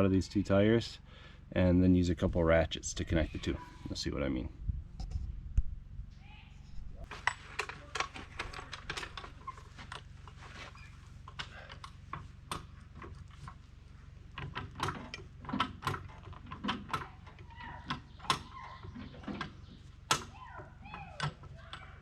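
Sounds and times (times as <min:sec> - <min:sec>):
short squeaks: 0:07.8 - 0:11.7, 0:17.3 - 0:21.2.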